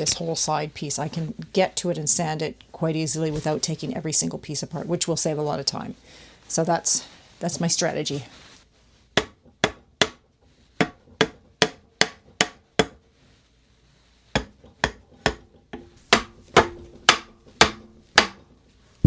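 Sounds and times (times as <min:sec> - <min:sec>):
hammer knocking on wood: 0:09.2 - 0:10.2, 0:10.8 - 0:13.0, 0:14.4 - 0:18.4.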